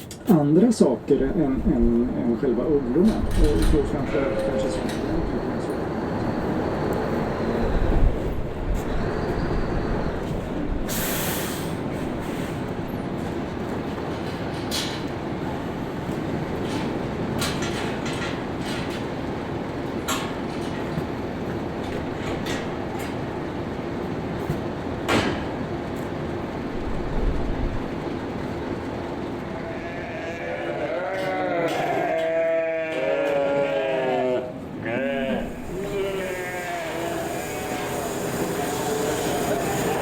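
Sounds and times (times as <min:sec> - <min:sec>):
sheep bleating: 0:29.5 - 0:40.0
truck blower running: 0:35.4 - 0:40.0.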